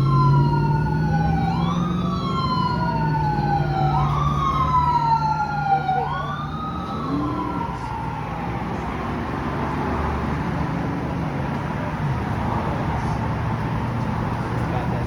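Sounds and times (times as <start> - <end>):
emergency siren wailing: 0.0 - 10.4
engine running hum: 0.0 - 15.0.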